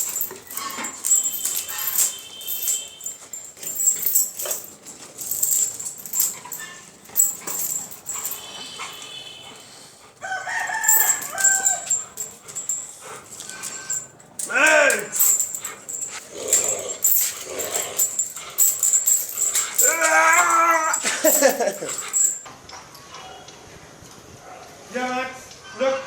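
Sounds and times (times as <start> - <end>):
rooster crowing: 10.2 - 12.0.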